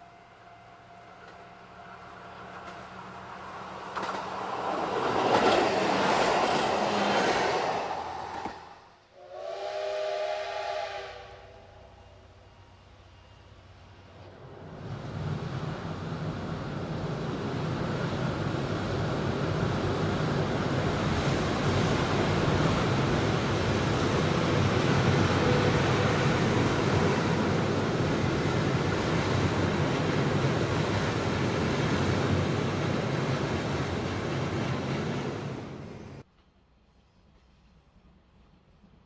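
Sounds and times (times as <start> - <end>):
train rumbling over steel bridge: 0.0 - 39.0.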